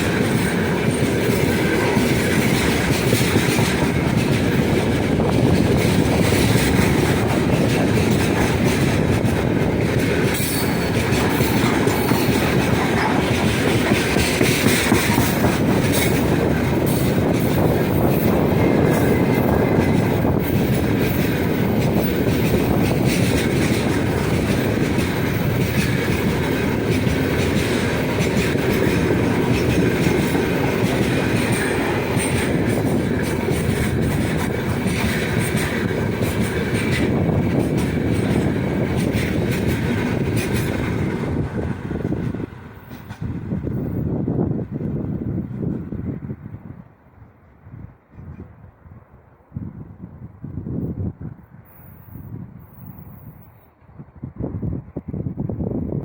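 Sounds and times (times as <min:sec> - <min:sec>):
train wheels clacking over rail joints: 0:00.0 - 0:44.0
train rumble: 0:00.0 - 0:56.0.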